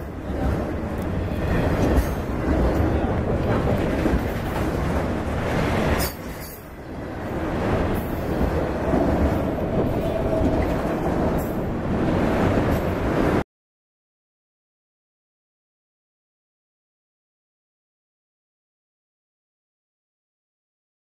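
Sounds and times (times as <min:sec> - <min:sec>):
train wheels clattering on rail: 0:00.0 - 0:13.4.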